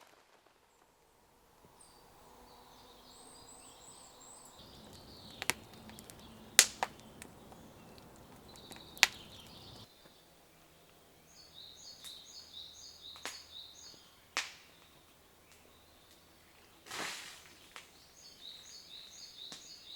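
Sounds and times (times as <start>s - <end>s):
small bird chirping: 1.7s - 10.2s, 17.5s - 19.9s
sharp clicks and knocks: 4.7s - 9.8s.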